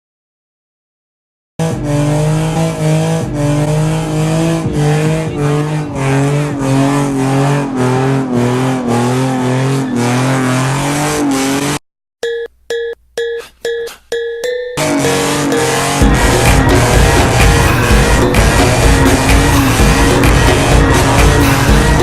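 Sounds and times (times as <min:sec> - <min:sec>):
car engine revving hard: 0:01.6 - 0:11.8, 0:14.8 - 0:22.0
tyre screeching noise: 0:15.5 - 0:22.0.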